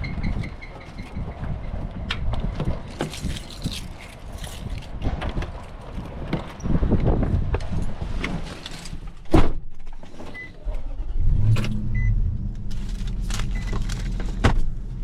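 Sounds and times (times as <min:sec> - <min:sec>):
engine starting and idling: 0:10.6 - 0:14.4.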